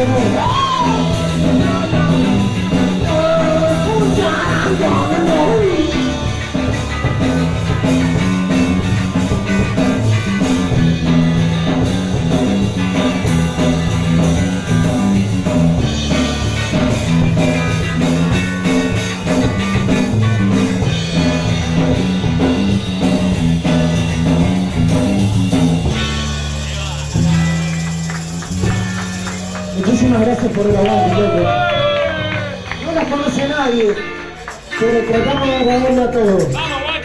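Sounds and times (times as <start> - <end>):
person singing: 0.0 - 6.2
punk rock band playing live: 0.0 - 37.0.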